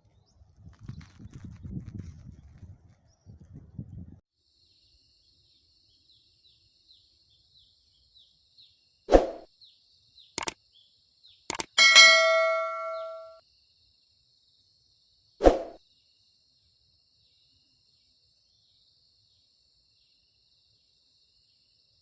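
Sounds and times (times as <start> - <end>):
short falling chirps: 11.5 - 13.4
ringing metallic clang: 11.7 - 13.4.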